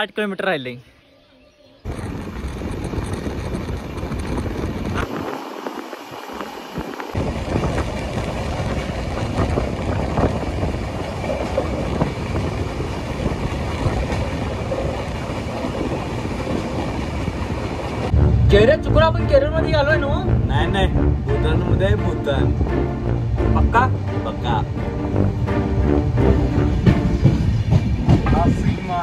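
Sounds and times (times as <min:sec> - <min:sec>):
wind on microphone: 0:01.8 - 0:18.7
train wheels rattling on rails: 0:01.9 - 0:18.1, 0:25.4 - 0:29.0.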